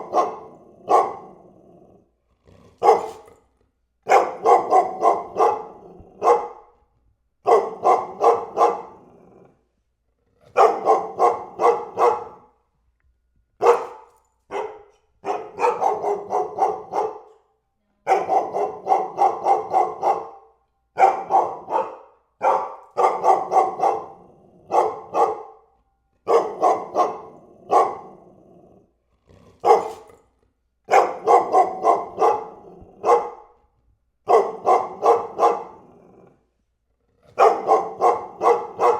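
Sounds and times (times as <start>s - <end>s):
dog barking: 0.0s - 1.5s, 2.8s - 3.4s, 4.0s - 6.8s, 7.4s - 9.1s, 10.5s - 12.6s, 13.6s - 28.3s, 29.6s - 30.2s, 30.9s - 33.6s, 34.2s - 36.4s, 37.3s - 38.9s.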